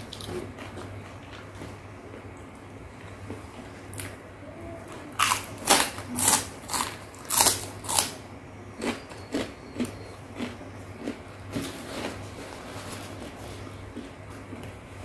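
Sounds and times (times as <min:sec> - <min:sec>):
biting and chewing food: 0:05.2 - 0:08.2.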